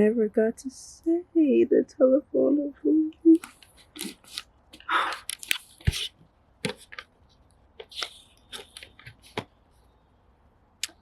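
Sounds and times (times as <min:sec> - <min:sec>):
handling noise clicks and rustles: 0:03.4 - 0:09.6.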